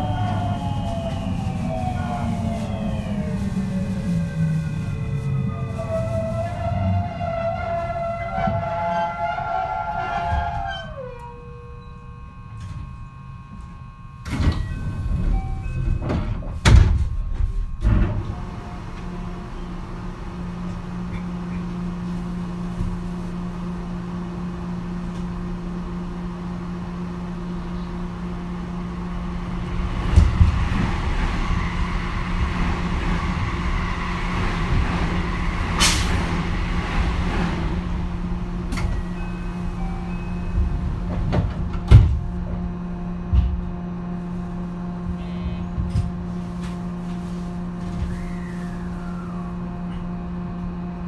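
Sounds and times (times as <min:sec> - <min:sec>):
low train hum: 0:00.0 - 0:51.0
sliding doors thudding open: 0:40.5 - 0:42.7.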